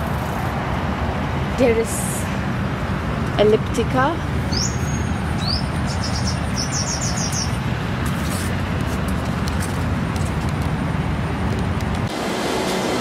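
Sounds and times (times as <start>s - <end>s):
small bird chirping: 4.5s - 7.6s.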